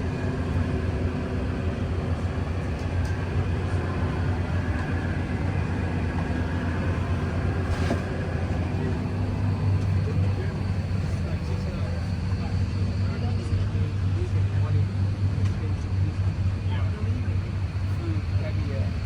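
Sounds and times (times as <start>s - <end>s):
voices in background: 0.0s - 19.0s.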